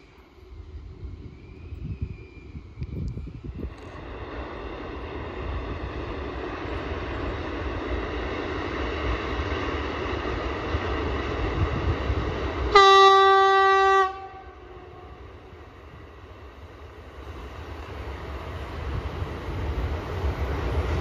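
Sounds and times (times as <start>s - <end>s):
train rumble: 0.0s - 21.0s
train horn blast: 12.7s - 15.3s.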